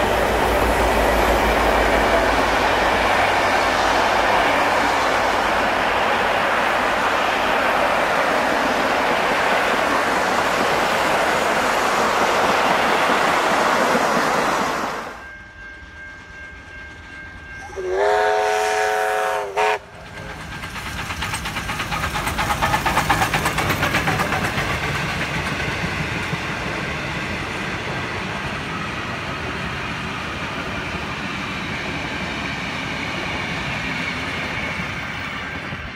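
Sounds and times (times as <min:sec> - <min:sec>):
rhythmic train clatter: 0:00.0 - 0:35.9
train wheels rushing past: 0:00.0 - 0:35.9
steam locomotive chime whistle: 0:14.3 - 0:20.8.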